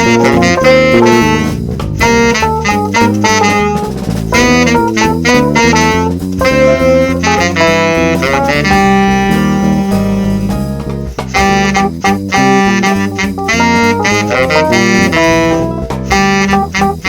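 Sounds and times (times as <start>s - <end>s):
bass line: 0.0s - 17.0s
drums: 0.0s - 17.0s
jazz saxophone melody: 0.0s - 17.0s.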